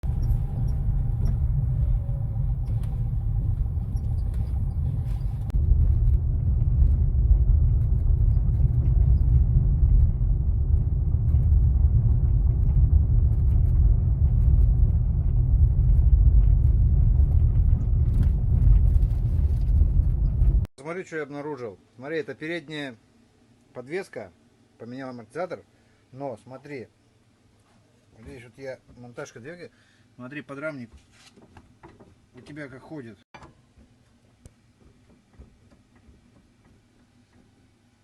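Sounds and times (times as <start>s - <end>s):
road and tyre noise: 0.0s - 20.7s.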